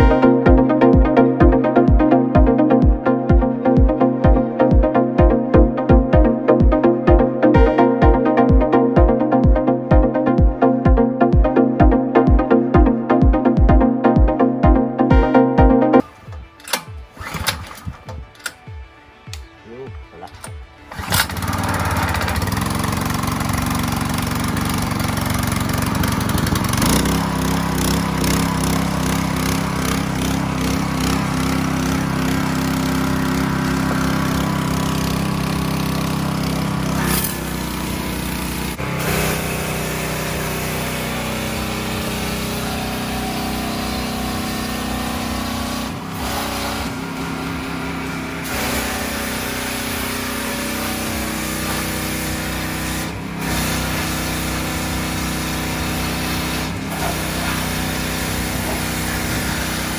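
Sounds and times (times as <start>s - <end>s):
small gasoline engine running: 20.9s - 59.9s.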